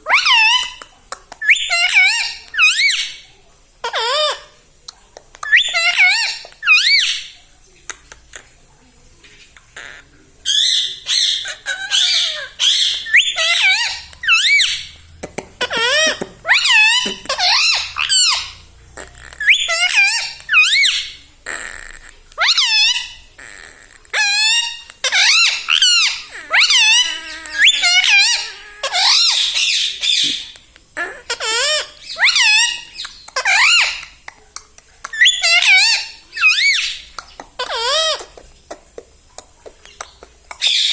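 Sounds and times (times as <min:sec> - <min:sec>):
parakeet screeching: 0:00.0 - 0:04.6, 0:05.4 - 0:07.4, 0:09.8 - 0:34.2, 0:35.0 - 0:38.4, 0:39.9 - 0:40.9
parrot squeaking calls: 0:00.0 - 0:04.6, 0:05.4 - 0:07.4, 0:09.7 - 0:40.9
parakeet whistling: 0:01.4 - 0:03.2, 0:05.4 - 0:07.3, 0:10.5 - 0:15.0, 0:15.6 - 0:21.2, 0:24.2 - 0:30.4, 0:31.3 - 0:34.2, 0:35.0 - 0:38.3.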